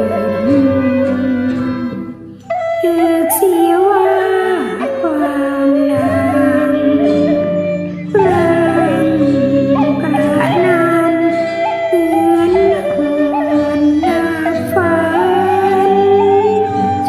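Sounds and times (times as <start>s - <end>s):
instrumental accompaniment: 0.0s - 17.0s
woman singing: 0.0s - 17.0s.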